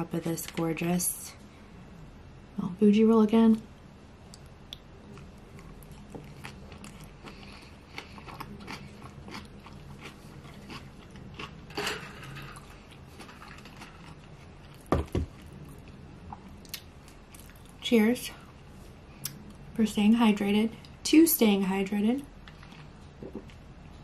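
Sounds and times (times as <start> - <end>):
close chewing with wet mouth clicks: 4.4 - 11.5.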